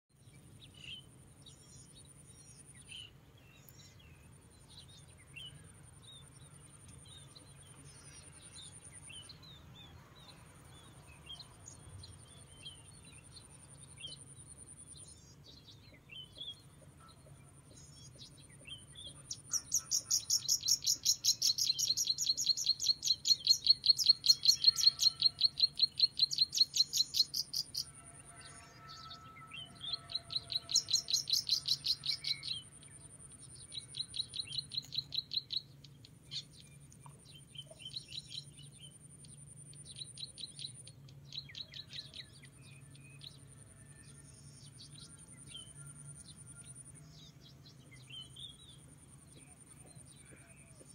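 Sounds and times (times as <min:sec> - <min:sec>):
bird chirping rapidly: 0:19.4 - 0:27.8.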